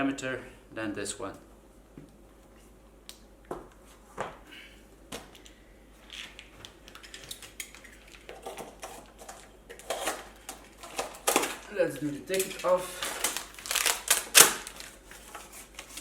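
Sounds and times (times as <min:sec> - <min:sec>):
tools and parts clattering: 0:12.3 - 0:14.7.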